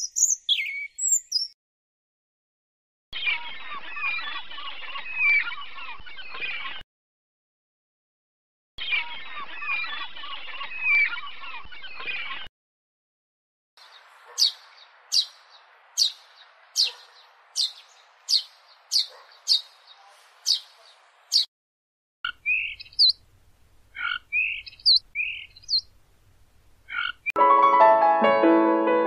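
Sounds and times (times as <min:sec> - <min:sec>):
sharp bird chirps: 0:00.0 - 0:01.6, 0:13.8 - 0:20.7, 0:22.3 - 0:23.2, 0:24.0 - 0:25.9.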